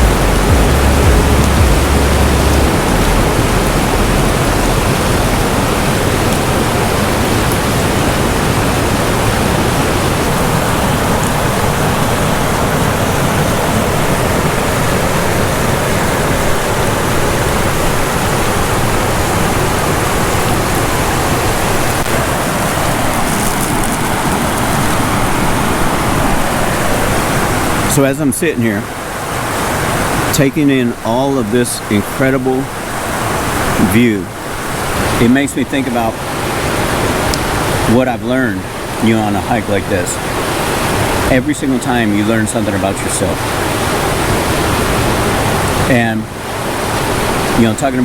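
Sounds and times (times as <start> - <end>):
deep low rumble: 0.0 - 6.7
waterfall rushing: 0.0 - 48.0.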